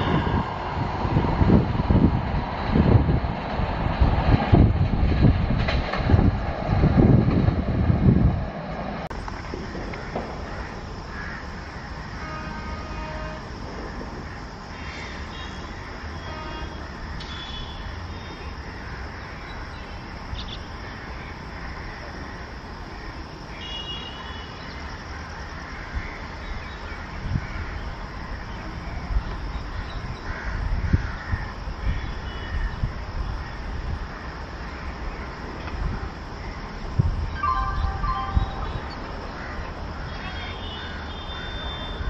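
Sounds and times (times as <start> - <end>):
wheels thudding over rail joints: 0.0 - 11.7
approaching train rumble: 0.0 - 23.5
crows cawing: 9.7 - 12.4, 20.8 - 23.2, 25.1 - 26.2, 30.2 - 32.7, 39.3 - 39.7.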